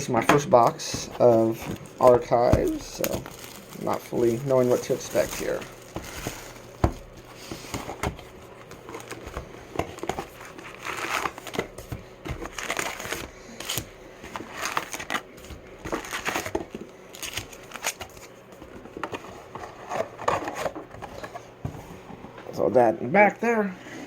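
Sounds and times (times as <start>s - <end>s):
plastic wrapping crinkling: 0.5s - 18.5s.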